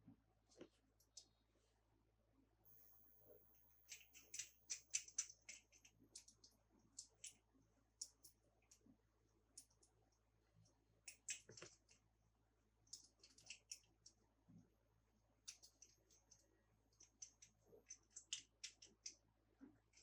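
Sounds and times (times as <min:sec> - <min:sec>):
toy cars and plastic clicking: 0:03.9 - 0:07.4, 0:08.0 - 0:08.8, 0:09.5 - 0:10.0, 0:11.0 - 0:12.0, 0:12.9 - 0:14.2, 0:15.4 - 0:20.0.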